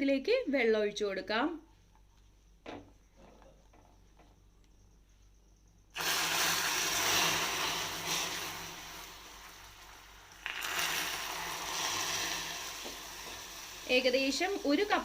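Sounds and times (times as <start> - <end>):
water hissing on molten sugar: 6.0 - 15.0.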